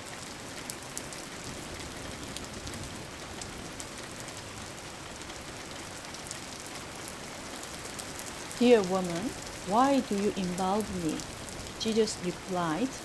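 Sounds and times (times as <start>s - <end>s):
steady rain falling: 0.0s - 13.0s
raindrops ticking: 7.7s - 13.0s.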